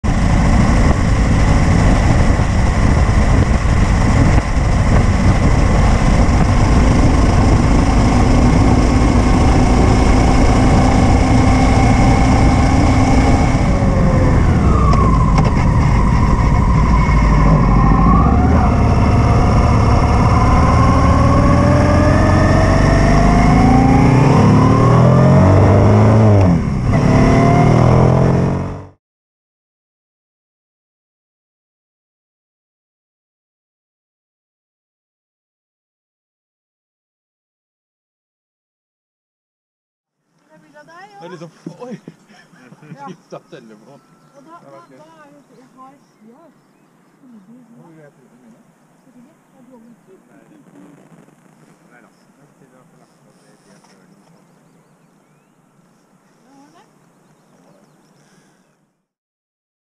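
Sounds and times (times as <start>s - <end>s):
wind rush: 0.0s - 28.2s
motorcycle engine running: 0.1s - 28.9s.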